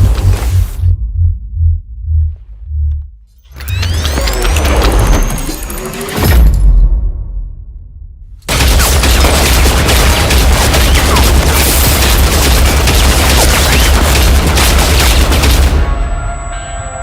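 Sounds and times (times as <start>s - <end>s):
low rumble: 0.0s - 3.4s
rapid machine-gun fire: 8.5s - 15.9s.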